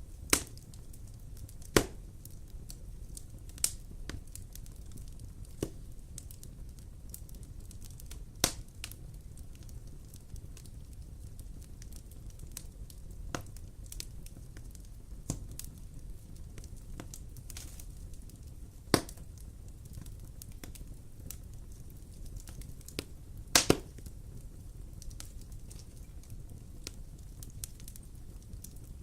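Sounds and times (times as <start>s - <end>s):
wood fire crackling and popping: 0.0s - 29.0s.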